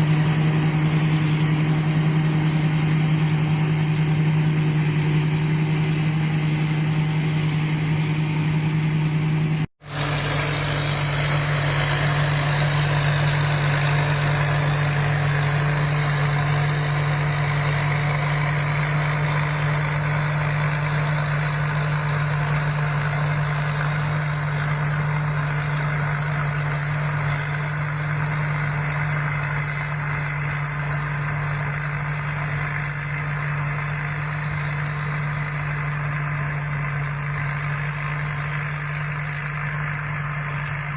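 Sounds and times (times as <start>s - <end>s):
combine harvester engine running: 0.0s - 40.9s.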